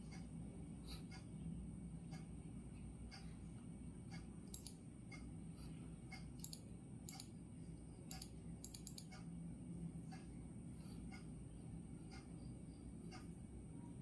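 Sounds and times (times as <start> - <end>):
clock ticking: 0.0 - 0.5, 2.0 - 3.4, 4.0 - 5.4, 6.0 - 7.3, 8.1 - 9.3, 10.0 - 10.4, 11.1 - 11.4, 12.0 - 13.5
low room hum: 0.0 - 14.0
irregular clicks: 4.1 - 5.3, 6.1 - 7.4, 8.1 - 9.3.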